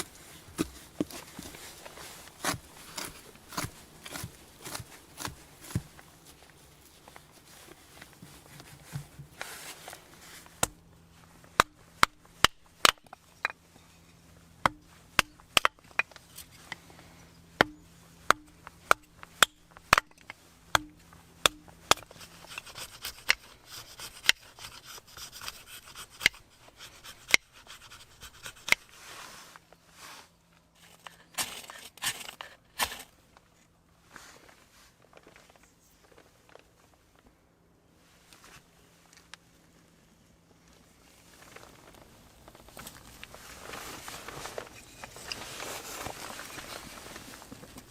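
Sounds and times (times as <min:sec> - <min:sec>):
scraping on wood: 0:00.0 - 0:10.5.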